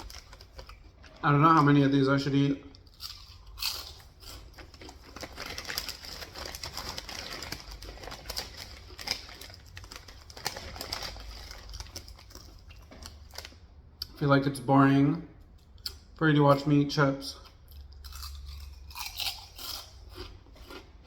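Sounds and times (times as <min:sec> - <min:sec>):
chips being chewed: 0:00.0 - 0:01.8, 0:02.8 - 0:14.2, 0:17.4 - 0:21.0.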